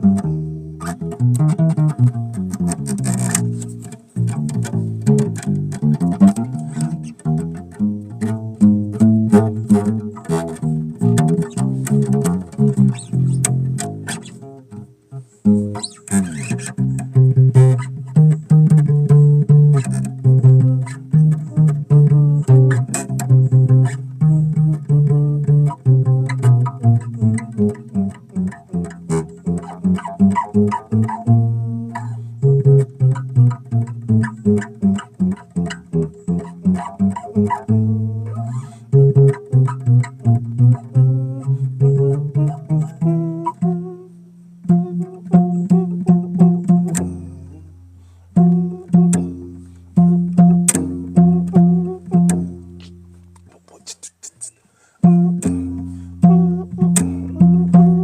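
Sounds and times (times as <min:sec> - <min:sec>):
bass guitar plucked notes: 0:00.0 - 0:58.0.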